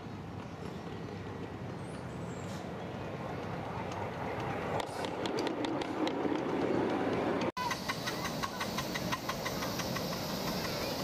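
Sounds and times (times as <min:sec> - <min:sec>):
miniature train clicking on track: 0:03.4 - 0:11.0.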